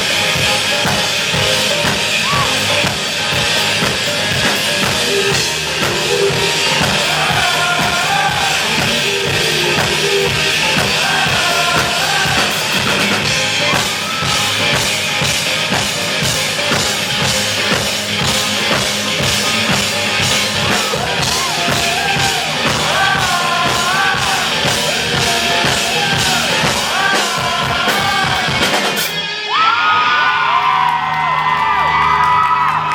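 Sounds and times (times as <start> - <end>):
drum kit: 0.0 - 32.9
rock band playing live: 0.0 - 32.9
audience cheering and screaming: 1.8 - 3.6, 4.8 - 15.9, 19.6 - 32.9
person singing: 5.1 - 14.8, 20.4 - 29.1.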